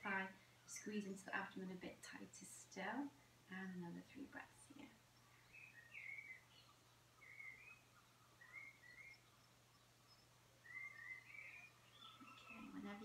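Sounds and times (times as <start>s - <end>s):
faint birdsong chirps: 0.0s - 13.0s
low steady hum: 0.0s - 13.0s.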